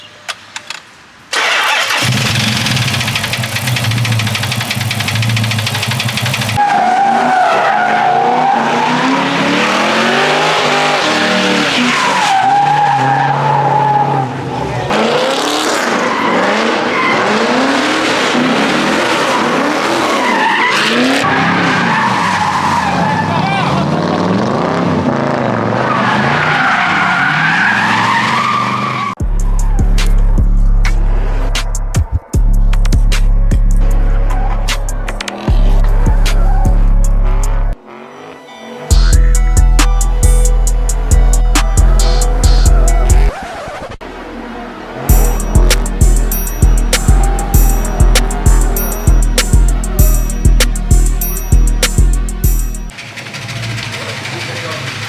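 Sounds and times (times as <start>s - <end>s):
tire squealing: 1.3s - 32.0s, 33.7s - 55.0s
high-revving car engine: 1.4s - 12.2s, 14.8s - 28.3s, 44.0s - 55.0s
car engine revving high: 8.0s - 12.2s, 44.0s - 55.0s
music with heavy bass: 29.2s - 37.8s, 38.9s - 43.3s, 45.1s - 52.9s.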